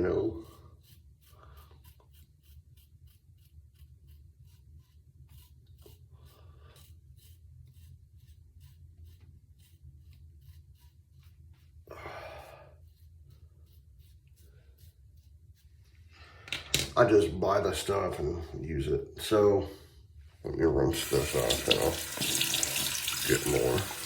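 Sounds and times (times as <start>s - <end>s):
shaving brush swishing lather: 0.0s - 16.2s, 20.9s - 24.0s.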